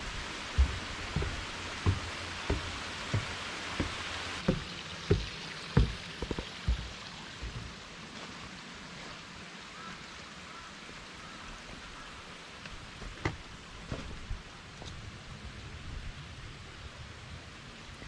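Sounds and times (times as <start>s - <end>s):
footsteps on trail: 0.0s - 8.4s
mountain stream rushing: 0.0s - 14.9s.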